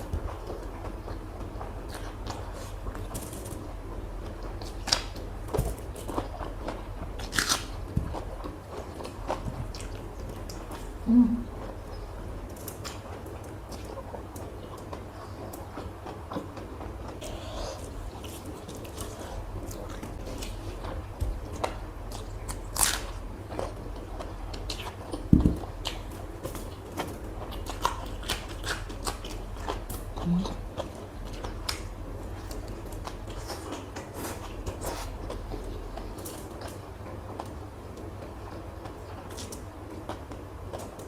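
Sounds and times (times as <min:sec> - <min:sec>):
low hum: 0:00.0 - 0:15.6
person chewing food: 0:00.0 - 0:41.0.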